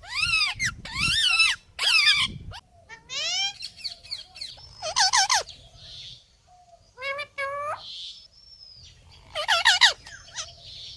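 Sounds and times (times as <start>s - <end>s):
parrot squawking and whistling: 0.0s - 2.4s.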